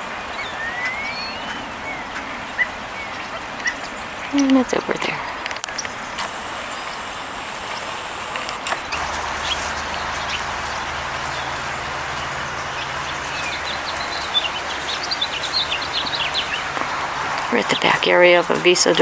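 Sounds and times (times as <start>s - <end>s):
small songbirds chirping: 0.3s - 19.0s
steady low hum: 6.0s - 18.9s.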